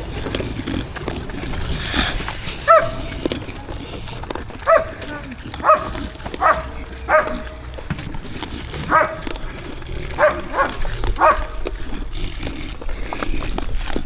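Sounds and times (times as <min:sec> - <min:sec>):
dog barking: 0:02.6 - 0:03.1, 0:04.6 - 0:07.6, 0:08.8 - 0:09.3, 0:10.1 - 0:11.6.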